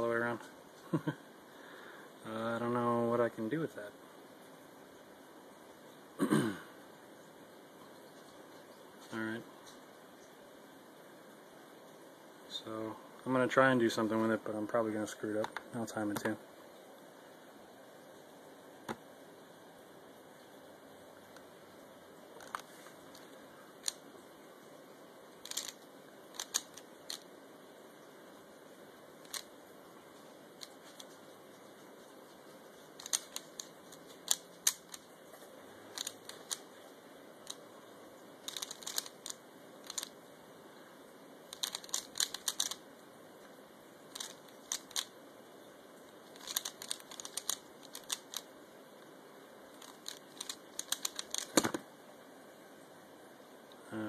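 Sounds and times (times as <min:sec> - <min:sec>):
plastic puzzle cube clicking: 0:25.4 - 0:27.3, 0:29.2 - 0:29.5, 0:33.0 - 0:35.0, 0:35.9 - 0:36.7, 0:38.4 - 0:40.2, 0:41.5 - 0:42.8, 0:44.1 - 0:45.1, 0:46.3 - 0:48.5, 0:49.8 - 0:51.8.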